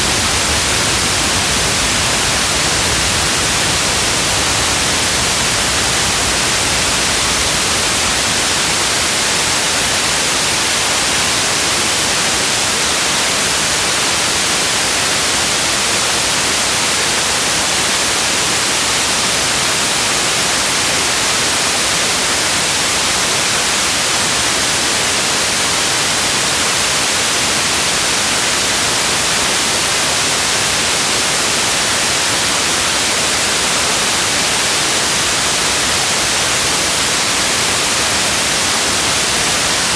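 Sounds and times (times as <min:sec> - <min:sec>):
steady rain hiss: 0:00.0 - 0:15.5, 0:28.5 - 0:39.9.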